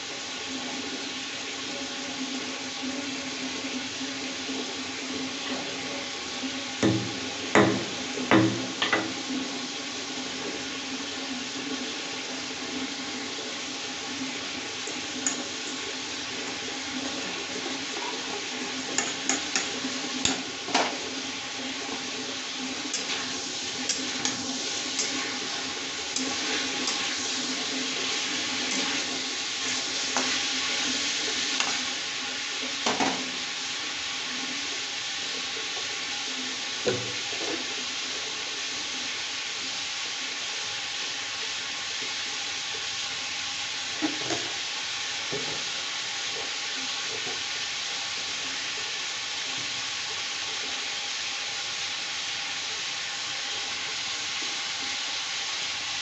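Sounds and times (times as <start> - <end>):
chicken sizzling in oil: 0.0 - 56.0
knocks against pan: 6.8 - 9.2.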